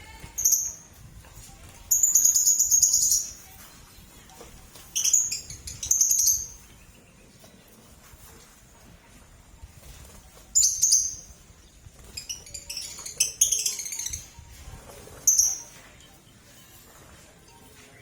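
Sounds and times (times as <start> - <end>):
lovebirds chirping shrilly: 1.9 - 3.4, 4.9 - 7.0, 10.5 - 14.4.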